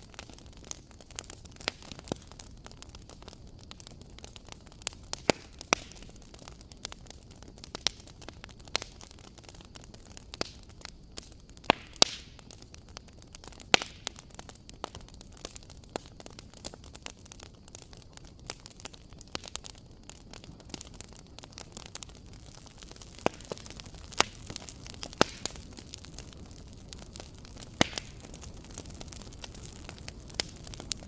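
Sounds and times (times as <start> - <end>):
wood fire crackling: 0.0 - 31.0.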